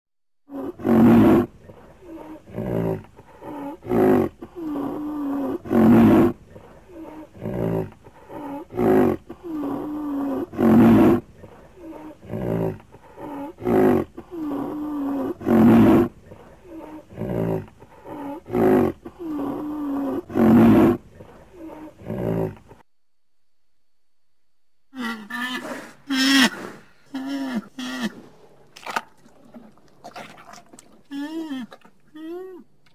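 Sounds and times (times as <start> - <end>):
creature moaning calls: 31.1 - 32.7.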